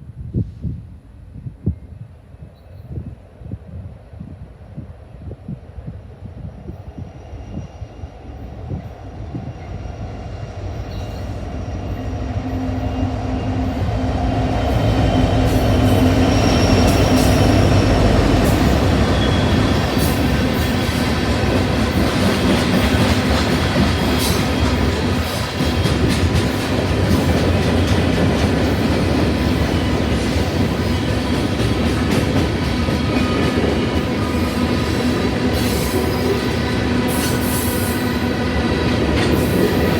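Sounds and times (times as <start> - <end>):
freight train rumbling: 0.0 - 39.9
high wheel squeals: 14.7 - 20.3.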